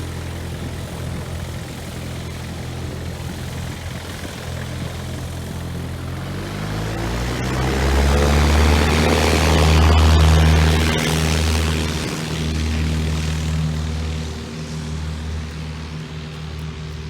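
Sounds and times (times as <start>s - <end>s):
propeller aircraft engine: 0.0s - 17.0s.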